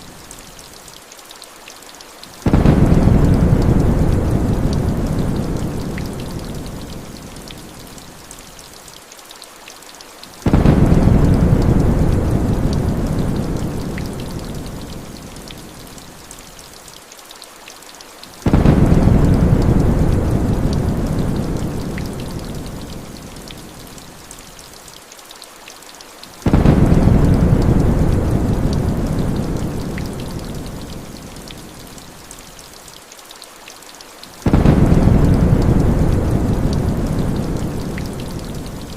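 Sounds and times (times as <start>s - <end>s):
heavy rain falling: 0.0s - 38.9s
thunder rumbling: 2.4s - 6.9s, 10.5s - 14.9s, 18.5s - 22.5s, 26.5s - 30.9s, 34.4s - 38.9s.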